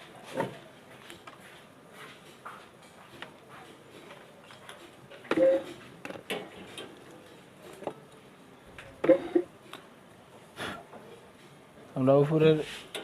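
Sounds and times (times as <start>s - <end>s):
clicks and knocks of fan parts: 2.2s - 9.9s.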